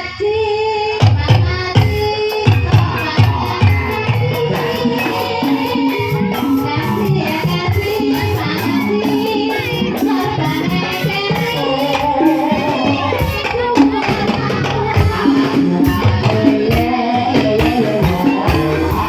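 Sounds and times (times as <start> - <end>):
singing: 0.0 - 19.0
rapid rattling percussion: 1.0 - 19.0.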